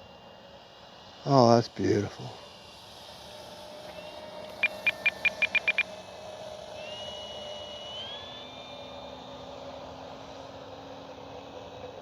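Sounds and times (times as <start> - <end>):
model plane motor drone: 0.0 - 12.0
thin high whine: 3.6 - 9.5
short electronic beeps: 4.6 - 5.9.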